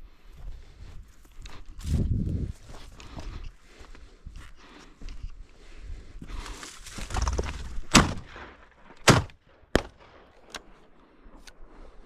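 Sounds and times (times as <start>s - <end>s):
rustling through brush: 6.2s - 8.0s
shotgun shots: 7.9s - 10.4s.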